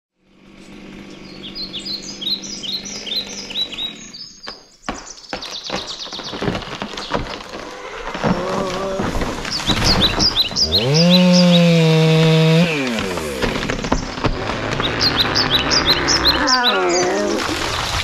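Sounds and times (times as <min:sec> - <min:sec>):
bird chirping: 0:00.6 - 0:07.4, 0:09.4 - 0:11.9, 0:14.8 - 0:17.5.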